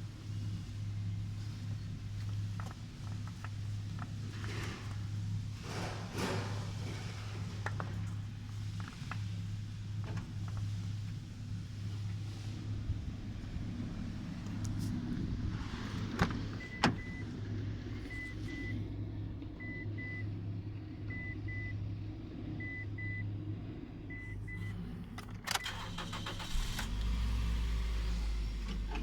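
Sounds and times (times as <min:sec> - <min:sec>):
deep low rumble: 0:00.0 - 0:25.2
car engine idling: 0:00.0 - 0:29.0
car warning chime beeping: 0:16.6 - 0:17.3, 0:18.0 - 0:18.8, 0:19.6 - 0:20.4, 0:21.1 - 0:21.8, 0:22.6 - 0:23.3, 0:24.1 - 0:24.8.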